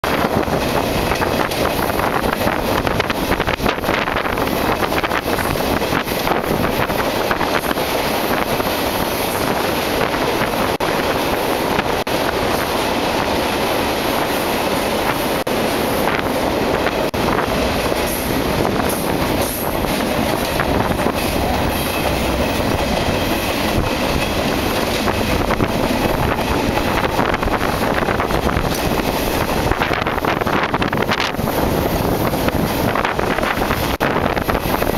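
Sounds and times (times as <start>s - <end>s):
train wheels rumbling and clattering: 0.0s - 34.9s.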